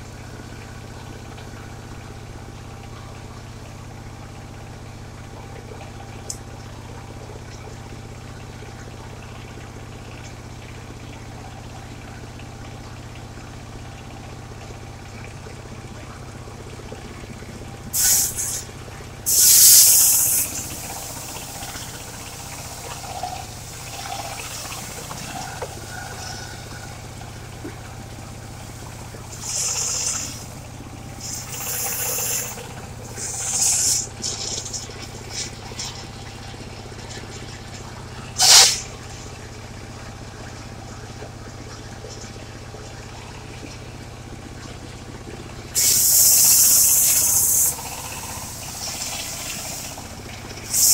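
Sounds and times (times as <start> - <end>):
sawmill engine running: 15.5 - 40.0, 45.6 - 50.9
loud hissing rushes: 19.3 - 21.3, 38.4 - 38.9.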